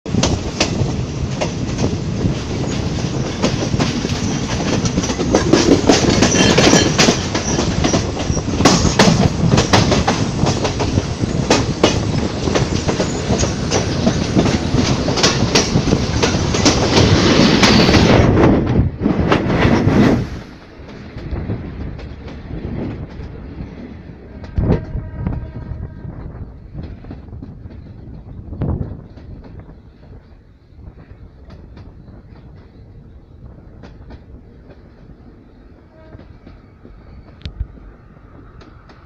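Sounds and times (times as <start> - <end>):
train wheels clattering over rail joints: 0.1 - 19.9, 26.7 - 32.9, 33.6 - 39.0.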